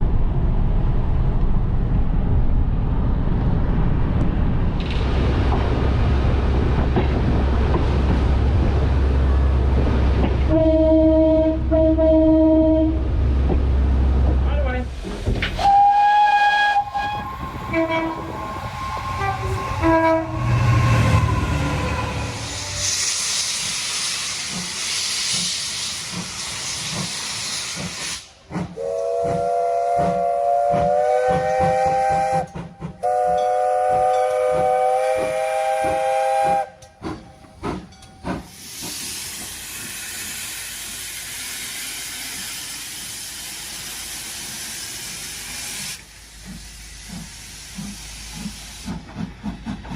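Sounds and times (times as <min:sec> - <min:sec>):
steam hissing: 0:14.9 - 0:49.9
steam locomotive whistle chord: 0:15.6 - 0:22.9, 0:28.8 - 0:36.9.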